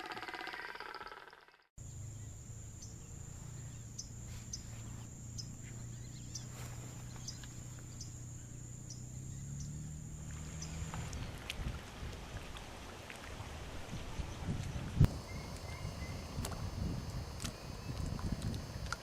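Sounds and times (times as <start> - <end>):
insect trill: 0.0 - 11.0, 15.1 - 19.0.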